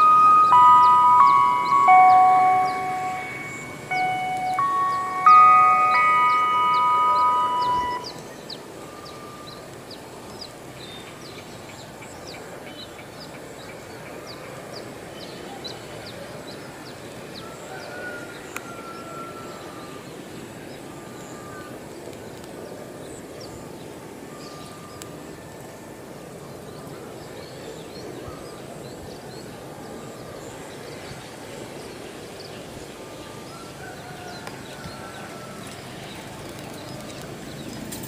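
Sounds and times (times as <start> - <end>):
birds chirping: 0.0 - 25.3
distant diesel train rumble: 0.0 - 38.0.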